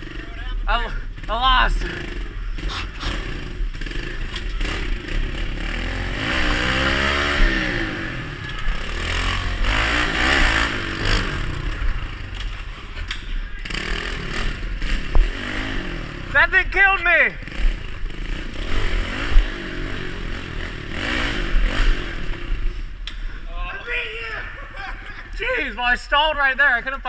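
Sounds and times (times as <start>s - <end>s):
bikes clattering and scraping: 0.0s - 20.8s
pit bike engines revving: 0.0s - 27.0s.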